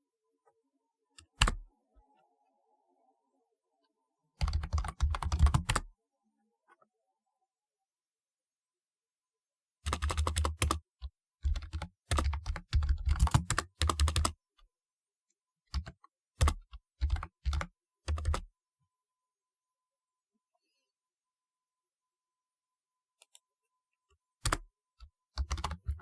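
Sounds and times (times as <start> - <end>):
typewriter keyboard typing: 4.4 - 5.8, 9.9 - 14.4, 15.8 - 18.4, 25.4 - 26.0.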